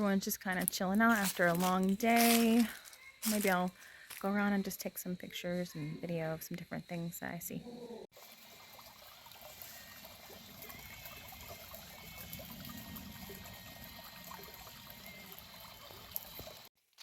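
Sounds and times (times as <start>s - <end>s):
creek trickling over rocks: 0.0s - 4.2s, 8.1s - 17.0s.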